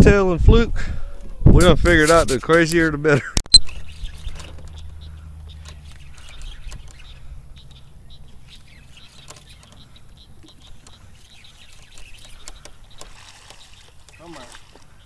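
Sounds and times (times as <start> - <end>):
small birds chirping: 3.5 - 15.0
light clicks and patters: 3.7 - 15.0.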